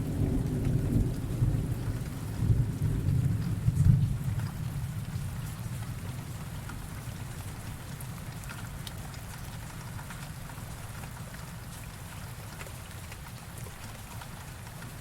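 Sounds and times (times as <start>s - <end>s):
low rumble of thunder: 0.0s - 5.4s
rain pattering: 0.0s - 15.0s.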